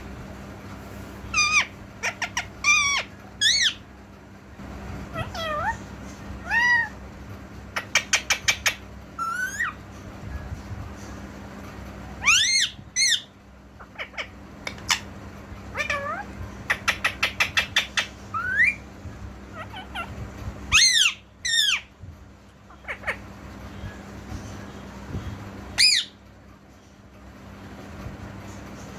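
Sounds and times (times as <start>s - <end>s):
parrot chirps: 1.2s - 3.8s, 5.1s - 7.0s, 7.7s - 9.8s, 12.2s - 18.9s, 19.5s - 22.0s, 22.7s - 23.6s, 25.7s - 26.2s
parrot screeching: 1.3s - 3.8s, 5.1s - 7.0s, 7.8s - 9.8s, 12.2s - 15.1s, 15.7s - 18.8s, 19.5s - 21.9s, 22.7s - 23.3s, 25.8s - 26.2s.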